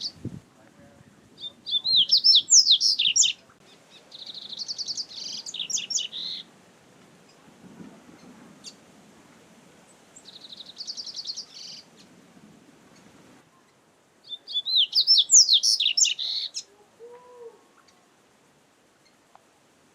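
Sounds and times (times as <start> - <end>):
bird singing trills: 1.4 - 6.5, 10.2 - 12.1, 13.6 - 16.7.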